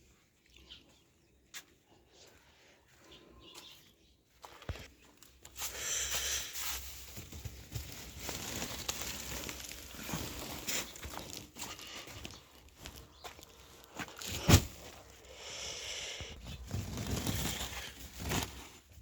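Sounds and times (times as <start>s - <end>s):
rustling and crinkling: 3.6s - 15.3s, 16.2s - 19.0s.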